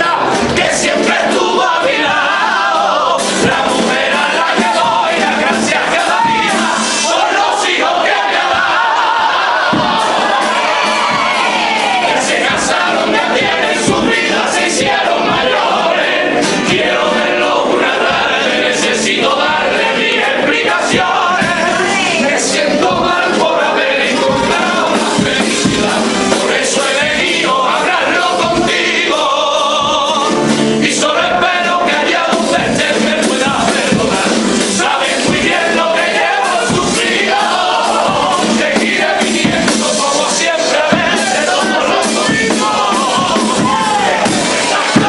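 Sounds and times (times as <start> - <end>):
group singing in chorus: 0.0 - 45.0.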